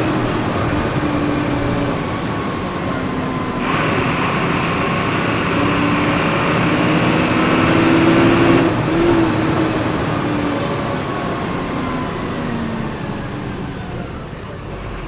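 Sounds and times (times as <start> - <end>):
bus diesel engine pulling: 0.0 - 15.0
hiss: 3.6 - 9.0.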